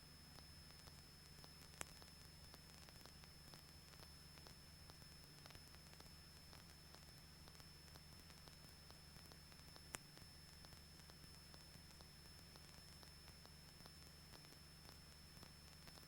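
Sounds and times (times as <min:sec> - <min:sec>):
small click: 0:00.8 - 0:04.6.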